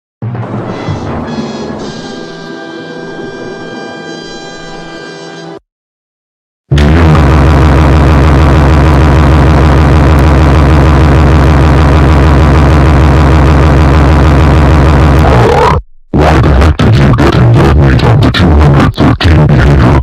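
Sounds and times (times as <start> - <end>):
loud harsh pulsing buzz: 6.7 - 15.8.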